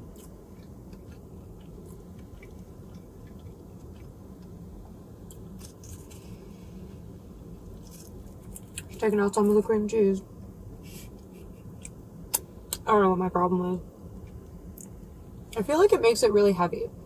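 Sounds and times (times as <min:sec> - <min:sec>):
person chewing food: 0:00.0 - 0:06.4, 0:07.7 - 0:09.0
low background hum: 0:00.0 - 0:17.0.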